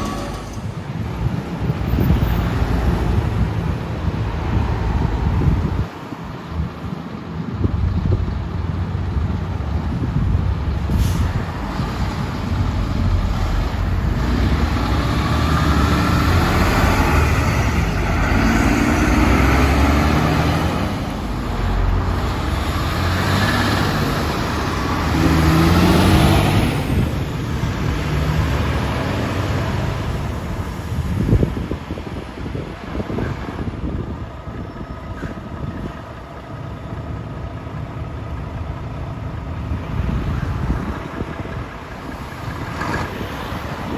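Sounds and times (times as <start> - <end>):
diesel trucks driving past: 0.0 - 43.9
wind buffeting microphone: 0.7 - 36.4, 39.6 - 43.9.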